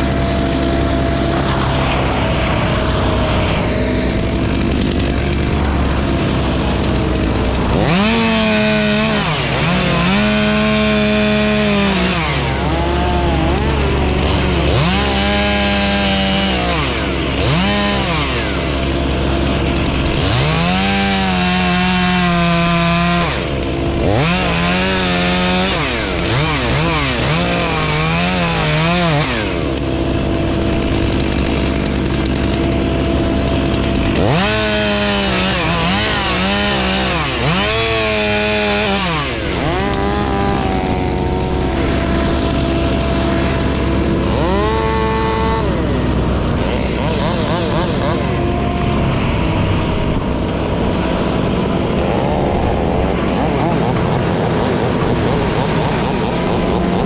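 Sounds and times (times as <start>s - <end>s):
steady low drone: 0.0s - 20.3s, 39.0s - 57.0s
chainsaw cutting wood: 0.0s - 57.0s.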